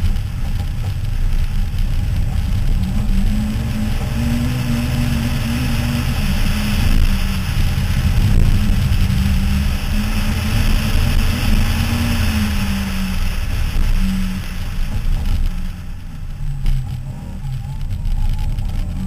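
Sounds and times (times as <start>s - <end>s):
rally car engine running hard: 0.0s - 19.0s
wind and tyres on gravel: 0.0s - 19.0s.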